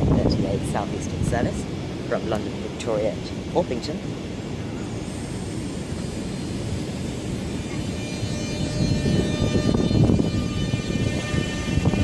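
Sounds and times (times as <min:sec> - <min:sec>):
train rumble: 0:00.0 - 0:12.0
traction motors whining: 0:04.5 - 0:12.0.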